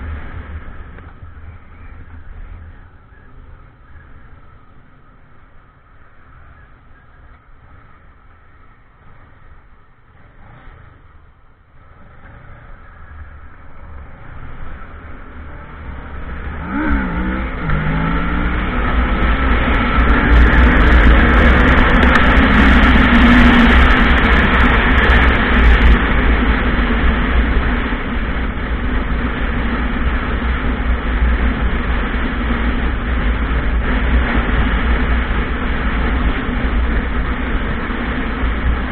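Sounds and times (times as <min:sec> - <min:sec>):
motorcycle accelerating: 0:00.0 - 0:38.9
wind noise on microphone: 0:13.5 - 0:38.9.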